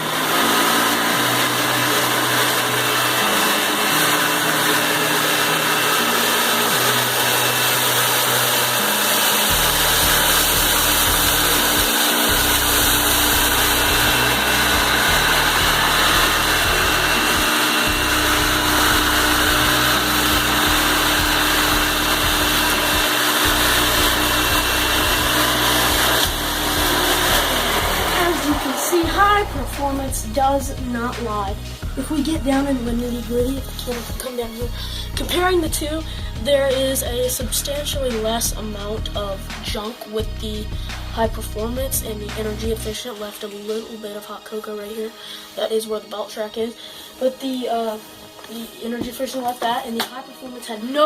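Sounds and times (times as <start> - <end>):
upright vacuum cleaner on carpet: 0.0 - 31.6.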